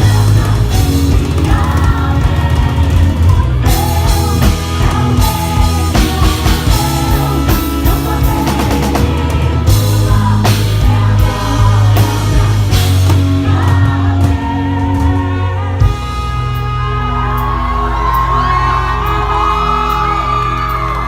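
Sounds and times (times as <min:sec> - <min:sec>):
bass line: 0:00.0 - 0:21.0
lead voice singing: 0:00.0 - 0:21.0
rock band playing: 0:00.0 - 0:21.0.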